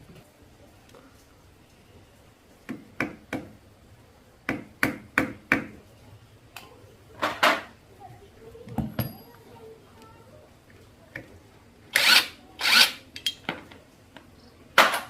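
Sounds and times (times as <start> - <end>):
tools tapping and knocking: 8.7 - 9.4, 13.2 - 13.8.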